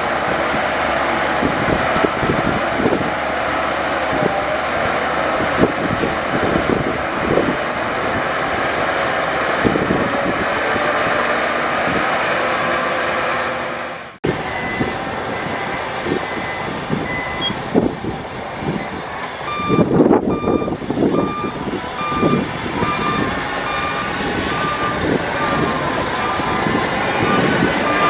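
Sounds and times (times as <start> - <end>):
diesel engines running: 0.0 - 28.0
reversing alarm beeping: 14.3 - 17.9, 18.7 - 28.0.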